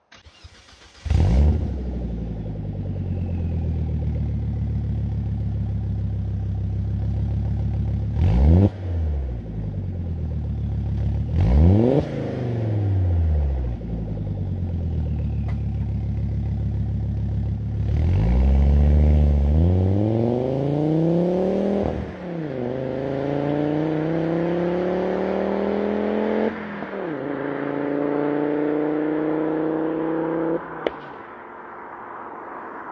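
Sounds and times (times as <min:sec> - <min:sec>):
car engine starting and revving: 0:00.0 - 0:31.2
car accelerating through gears: 0:11.3 - 0:13.9, 0:17.8 - 0:31.1.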